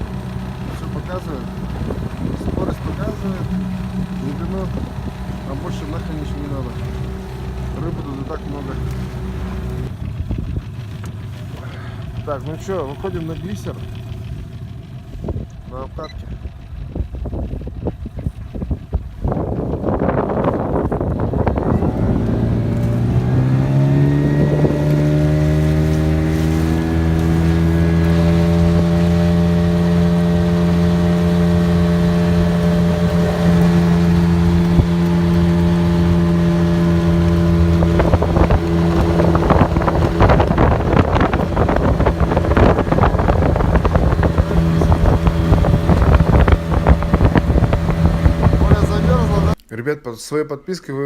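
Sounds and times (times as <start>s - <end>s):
outboard motor running: 0.0s - 49.6s
wind and water noise: 0.0s - 49.6s.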